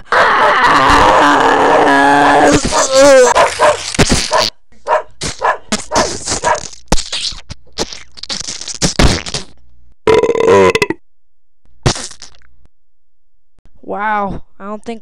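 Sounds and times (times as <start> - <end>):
dog barking and growling: 0.0 - 6.8.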